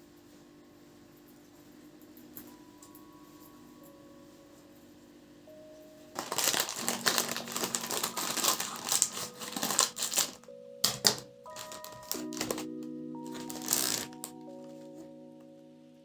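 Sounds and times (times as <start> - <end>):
soft background music: 0.0 - 16.0
crinkling handling noise: 6.1 - 15.2.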